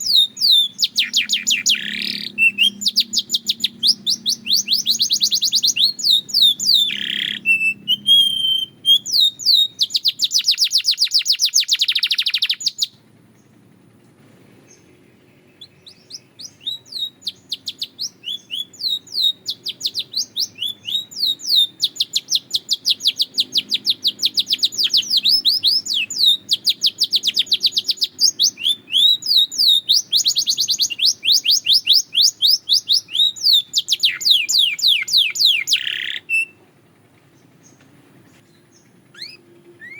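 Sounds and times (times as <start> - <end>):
canary singing trills: 0.0 - 13.7, 14.6 - 39.9.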